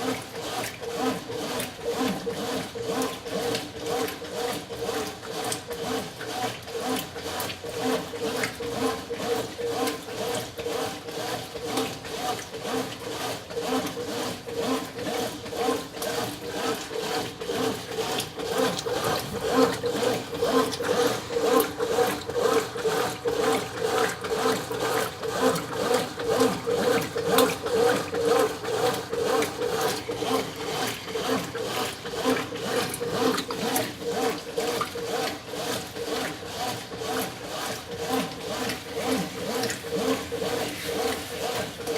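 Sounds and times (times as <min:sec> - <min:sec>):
washing machine agitator swishing: 0:00.0 - 0:41.9
motor hum: 0:14.8 - 0:35.7.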